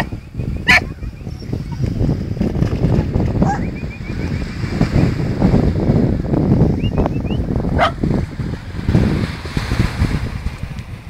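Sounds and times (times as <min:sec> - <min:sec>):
wind rumble on microphone: 0:00.0 - 0:11.0
dog barking: 0:00.7 - 0:01.0, 0:03.4 - 0:03.7, 0:07.8 - 0:08.0.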